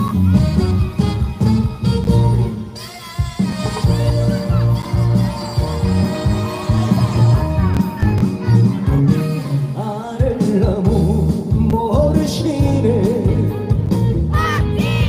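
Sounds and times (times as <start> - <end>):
wavering lead melody: 0.0 - 9.9
bass and drum beat: 0.0 - 15.0.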